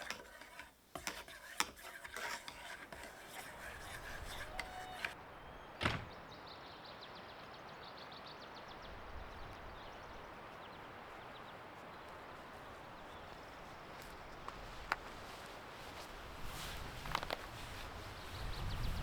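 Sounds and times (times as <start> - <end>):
sharp knock: 5.8 - 6.2.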